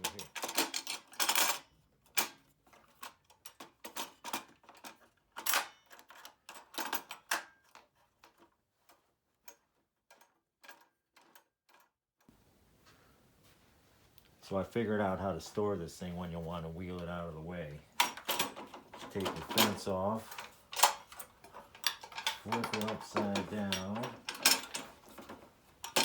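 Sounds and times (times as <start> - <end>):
saw fence clicks and knocks: 18.0 - 26.0.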